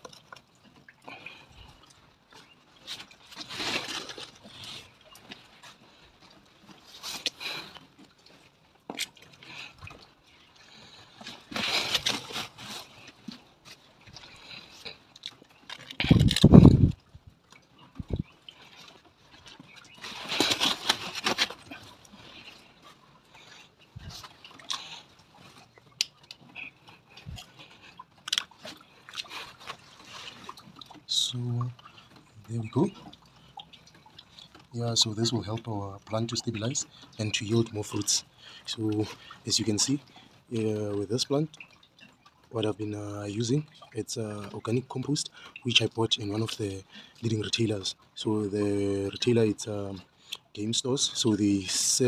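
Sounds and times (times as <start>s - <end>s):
soil crunching and scraping: 2.4s - 7.8s, 10.8s - 16.9s, 19.7s - 22.8s
soil scraping and rustling: 2.9s - 5.8s, 11.5s - 13.1s, 19.9s - 22.6s.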